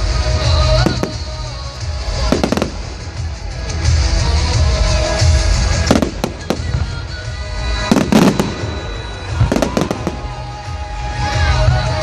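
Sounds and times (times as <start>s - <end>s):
music playing: 0.0s - 12.0s
fireworks sharp bangs: 0.4s - 3.7s, 5.2s - 10.9s.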